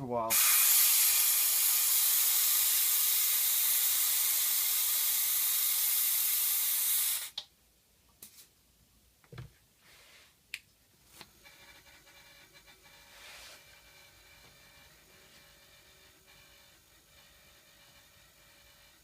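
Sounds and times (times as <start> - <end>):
compressed air hissing: 0.3 - 7.4.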